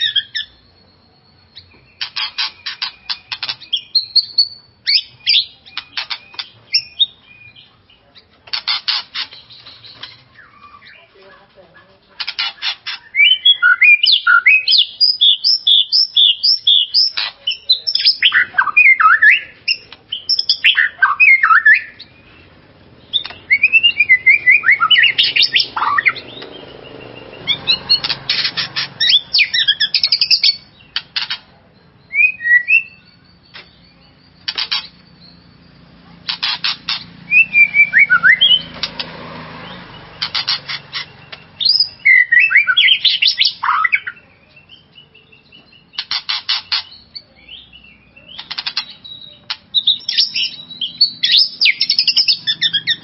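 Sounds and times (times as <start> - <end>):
bird singing whistled phrases: 0.0 - 7.7, 13.0 - 22.5, 23.1 - 28.0, 32.0 - 35.9, 37.3 - 38.7, 41.0 - 53.0.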